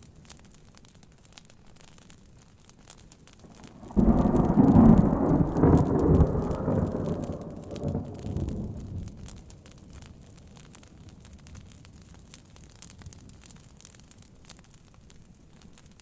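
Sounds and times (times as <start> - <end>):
fire crackling: 0.0 - 16.0
rain pattering on a tent: 0.0 - 16.0
thunder rumble: 3.4 - 10.4.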